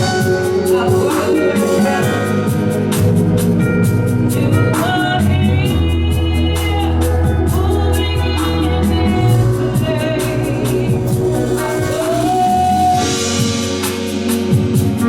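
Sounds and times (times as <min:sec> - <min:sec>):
people singing: 0:00.0 - 0:03.0, 0:04.3 - 0:13.4
bass: 0:00.0 - 0:15.0
keyboard chords: 0:00.0 - 0:15.0
drum beat: 0:07.2 - 0:15.0.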